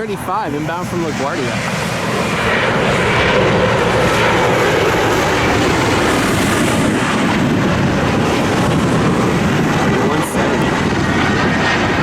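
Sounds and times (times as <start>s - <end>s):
jet airliner passing: 0.0s - 12.0s.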